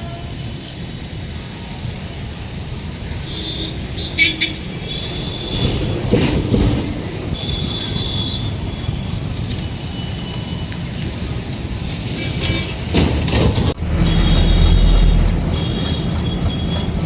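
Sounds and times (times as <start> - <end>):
train rumble: 0.0 - 17.0
sharp train clatters: 3.7 - 17.0
faint high wheel squeal: 7.3 - 12.9, 13.9 - 17.0.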